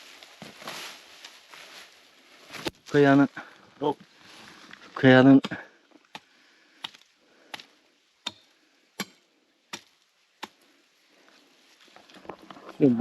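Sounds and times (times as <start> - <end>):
hand tool striking rock: 6.8 - 10.6.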